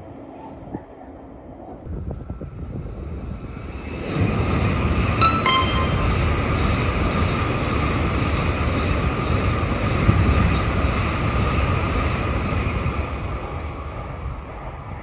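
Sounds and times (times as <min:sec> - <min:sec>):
train wheels rolling on rail: 0:06.2 - 0:15.0.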